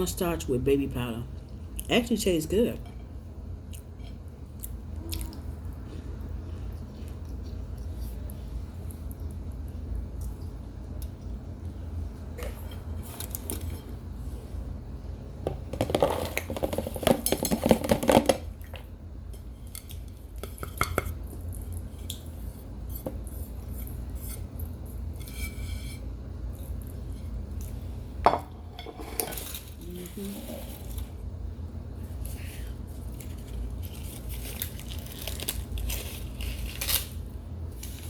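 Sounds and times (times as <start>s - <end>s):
dishes and cutlery clinking: 28.3s - 29.6s.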